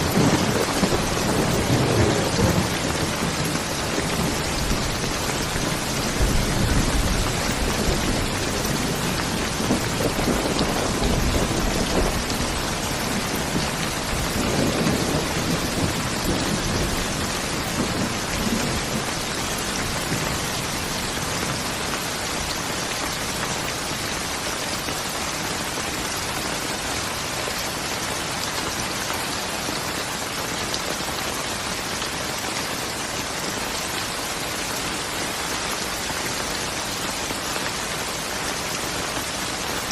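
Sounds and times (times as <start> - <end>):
thunder rumbling: 0.0 - 24.6
steady rain falling: 0.0 - 39.9.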